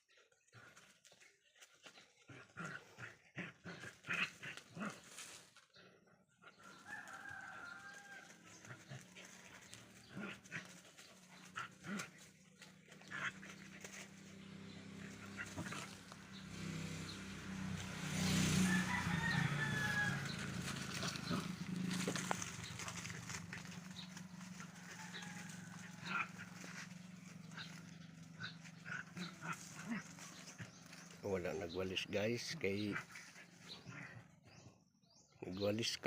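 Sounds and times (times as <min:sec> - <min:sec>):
dogs scuffling and clicking: 0:06.7 - 0:14.4, 0:20.3 - 0:28.3.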